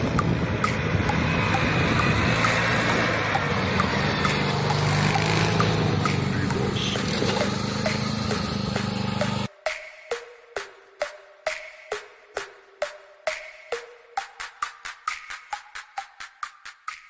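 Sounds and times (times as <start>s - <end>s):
lawn tractor engine running: 0.0s - 9.5s.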